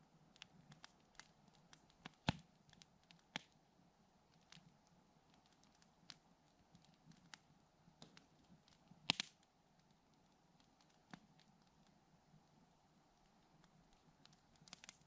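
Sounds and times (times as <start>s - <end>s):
campfire crackling: 0.0s - 15.0s
fire pops and snaps: 0.3s - 3.6s, 8.0s - 11.9s, 13.2s - 15.0s.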